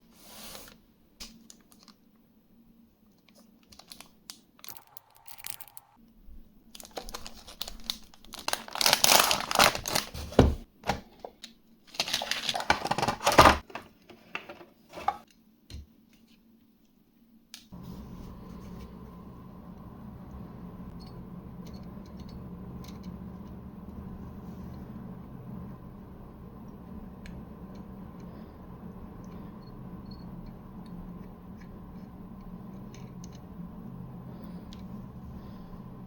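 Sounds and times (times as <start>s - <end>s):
packaging tearing and crinkling: 3.7s - 6.0s, 6.8s - 10.4s, 11.9s - 13.6s.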